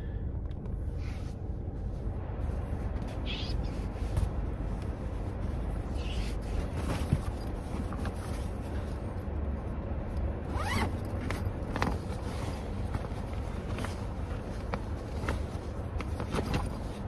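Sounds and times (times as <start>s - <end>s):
low background rumble: 0.0s - 17.0s
zipper being pulled: 10.5s - 11.2s.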